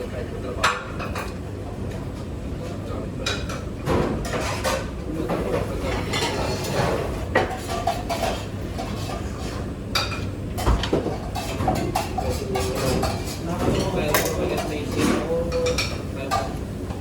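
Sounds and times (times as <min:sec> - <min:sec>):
dishes and cutlery clattering: 0:03.2 - 0:16.6.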